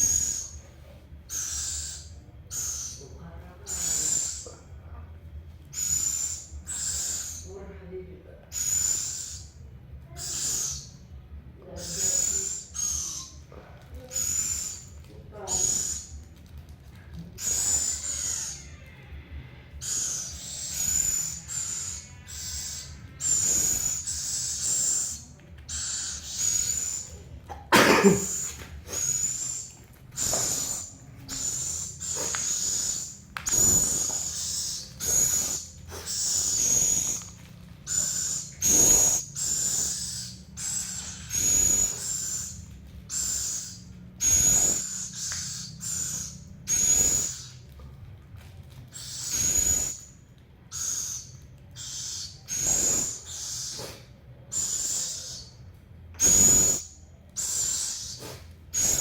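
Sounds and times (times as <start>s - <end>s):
owl hissing begging calls: 1.3s - 3.0s, 5.8s - 7.5s, 8.5s - 9.6s, 10.2s - 11.0s, 17.4s - 18.9s, 19.8s - 27.2s, 28.2s - 47.5s, 49.0s - 50.1s, 50.7s - 55.5s, 56.2s - 59.0s.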